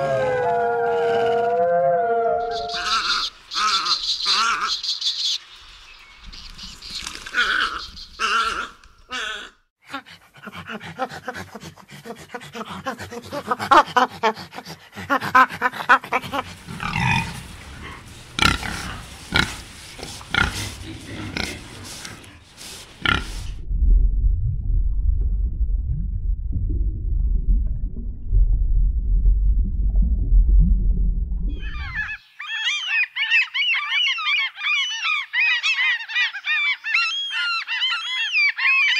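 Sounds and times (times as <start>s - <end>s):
monkeys calling: 2.4s - 5.4s, 7.2s - 9.6s, 15.0s - 23.5s, 31.6s - 38.9s
warthog grunting: 10.4s - 23.5s
low rumble of aquarium water: 23.5s - 32.0s.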